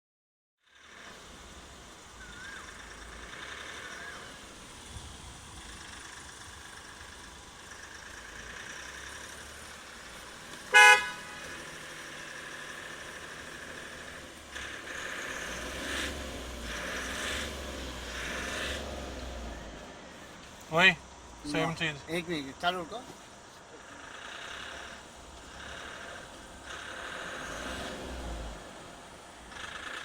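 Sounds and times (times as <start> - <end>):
diesel engine droning: 0.7 - 30.0
car horn: 10.7 - 11.7.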